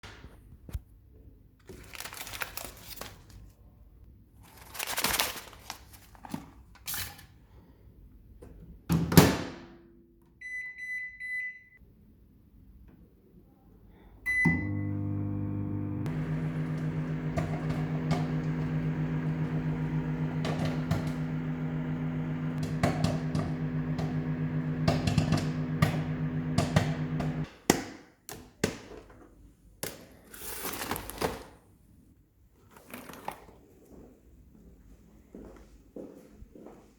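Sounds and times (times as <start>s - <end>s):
microwave oven beeping: 10.4s - 11.8s, 14.3s - 27.4s
microwave oven humming: 14.3s - 27.5s.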